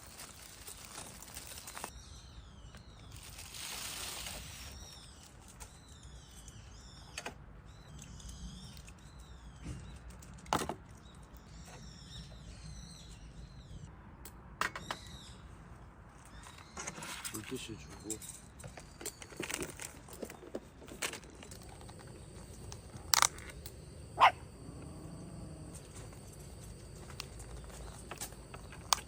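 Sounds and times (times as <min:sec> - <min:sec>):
rustle: 0:00.0 - 0:06.7
small birds chirping: 0:00.0 - 0:13.9, 0:14.8 - 0:29.0.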